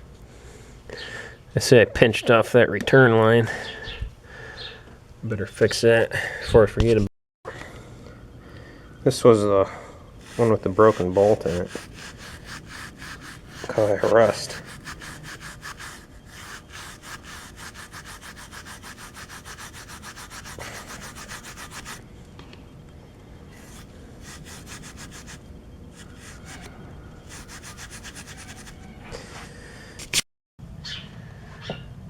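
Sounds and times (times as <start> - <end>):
hand tool scraping rust off metal: 10.2 - 22.0, 23.5 - 25.4, 26.0 - 28.8.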